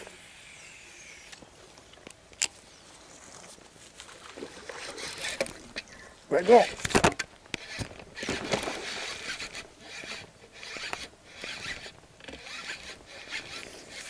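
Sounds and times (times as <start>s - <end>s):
fishing reel cranking whir: 0.0s - 1.4s, 7.5s - 14.0s.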